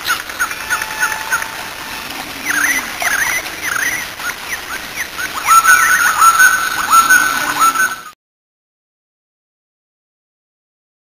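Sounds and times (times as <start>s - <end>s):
songbirds chirping: 0.0s - 8.2s
bird whistled note: 0.4s - 4.0s.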